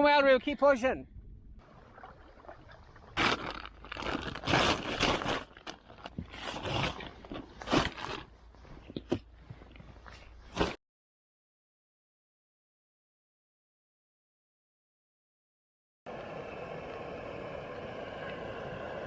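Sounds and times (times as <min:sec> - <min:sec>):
kayak hull scraping: 0:01.9 - 0:09.2.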